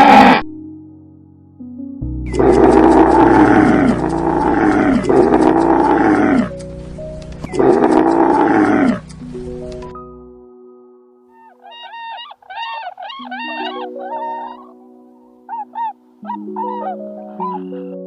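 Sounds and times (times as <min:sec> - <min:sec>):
lion roaring: 0:00.0 - 0:00.4, 0:02.3 - 0:06.6, 0:07.5 - 0:09.1
background music with held notes: 0:00.1 - 0:18.0.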